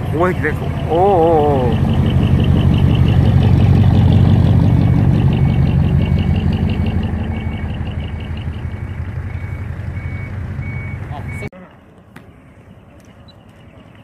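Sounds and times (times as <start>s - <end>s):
truck diesel engine running: 0.0s - 11.5s
reversing beeps: 4.6s - 11.5s.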